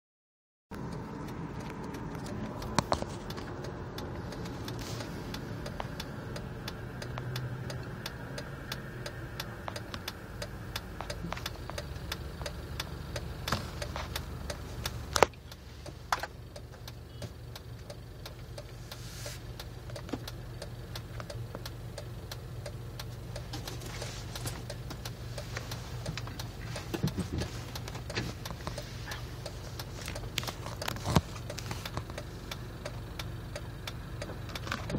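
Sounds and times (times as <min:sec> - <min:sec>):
engine ticking and clicking: 0:00.7 - 0:34.9
engine idling roughly: 0:09.6 - 0:34.9.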